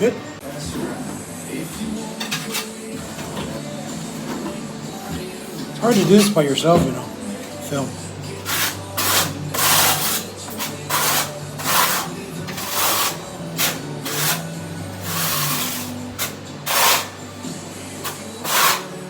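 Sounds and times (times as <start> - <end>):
grout scraping on tile: 1.6 - 7.0, 8.3 - 17.2, 18.0 - 19.0.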